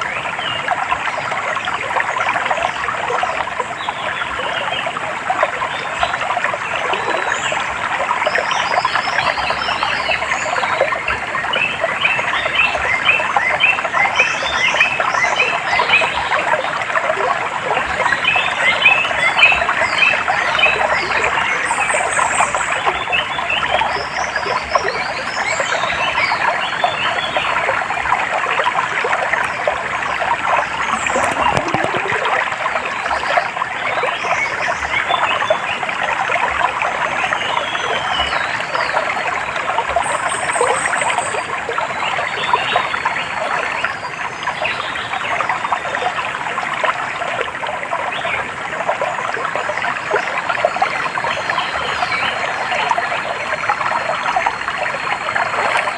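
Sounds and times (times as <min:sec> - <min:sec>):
running stream water: 0:00.0 - 0:55.9.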